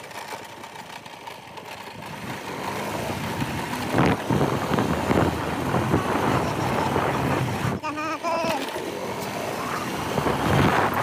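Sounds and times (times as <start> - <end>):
motorcycle engine rumble: 0.0 - 11.0
wind noise on microphone: 3.1 - 7.8, 9.6 - 11.0.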